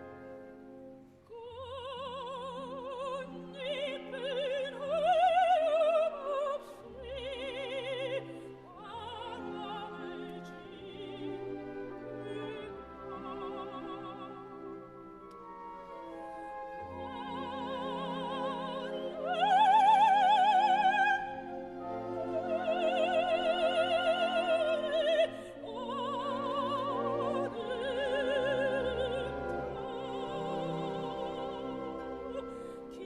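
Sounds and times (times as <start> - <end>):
orchestral accompaniment: 0.0 - 33.0
operatic singing: 1.3 - 33.0.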